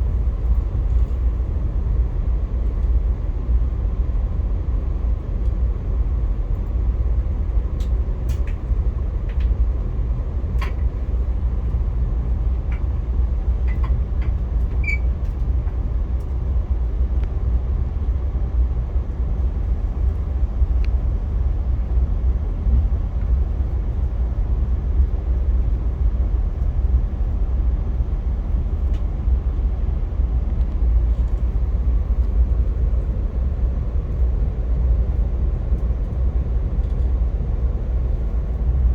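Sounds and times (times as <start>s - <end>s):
passenger train rumbling: 0.0s - 38.9s.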